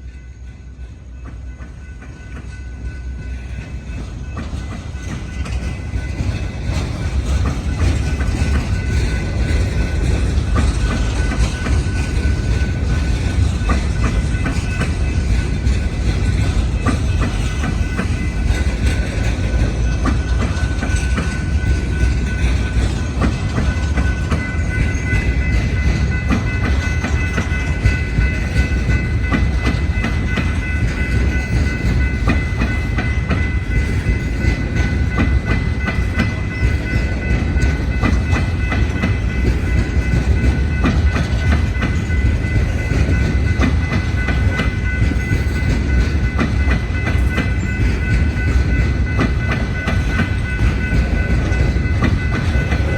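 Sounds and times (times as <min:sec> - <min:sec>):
railcars rolling past: 0:00.0 - 0:52.9
wheels clicking over rail joints: 0:01.2 - 0:52.9.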